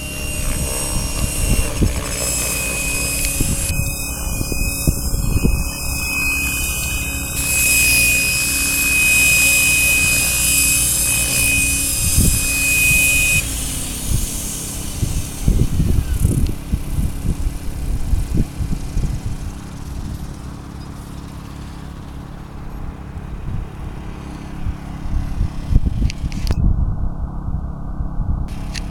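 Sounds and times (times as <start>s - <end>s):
wind on microphone: 0.0s - 21.4s, 22.4s - 28.9s
model helicopter whine: 0.0s - 26.6s, 27.2s - 28.9s.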